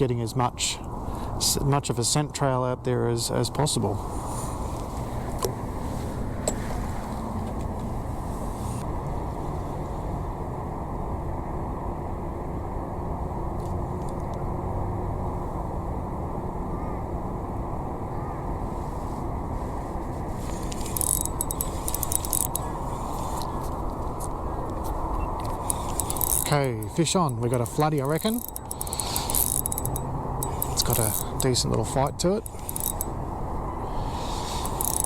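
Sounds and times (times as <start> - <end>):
sharp clicks and rattles: 20.5 - 33.2, 34.5 - 35.0.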